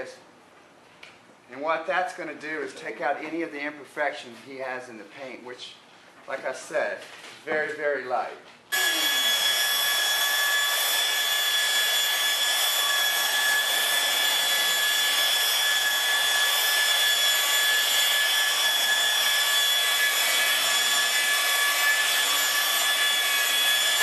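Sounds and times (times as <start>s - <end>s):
electric car polisher whining: 8.7s - 24.0s.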